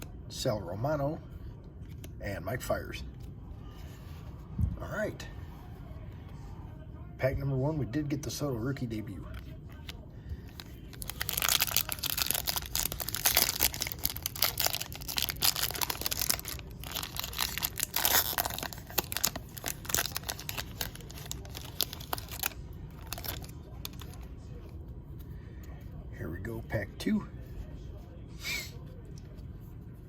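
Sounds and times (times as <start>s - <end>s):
foil wrapper crinkling and tearing: 10.6s - 24.2s.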